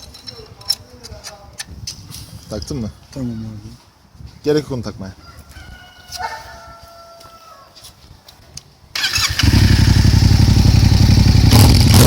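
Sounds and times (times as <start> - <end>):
starter motor cranking: 9.0 - 10.1
motorcycle engine idling: 9.0 - 12.0.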